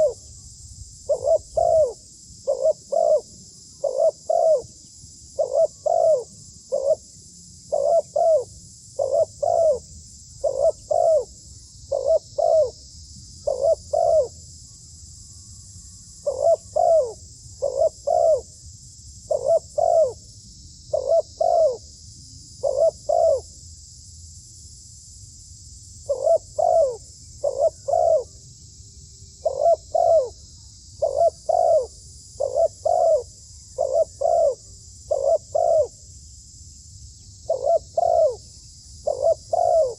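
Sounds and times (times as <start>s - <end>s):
dove cooing: 0.0s - 0.2s, 1.1s - 4.7s, 5.4s - 7.1s, 7.7s - 12.8s, 13.4s - 14.4s, 16.2s - 18.5s, 19.3s - 20.2s, 20.9s - 21.8s, 22.6s - 23.5s, 26.1s - 28.4s, 29.4s - 30.4s, 31.0s - 36.0s, 37.5s - 39.9s.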